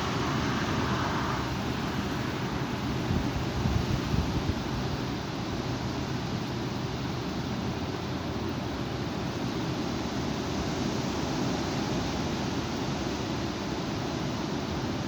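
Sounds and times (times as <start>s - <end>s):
strong wind blowing: 0.0s - 5.1s.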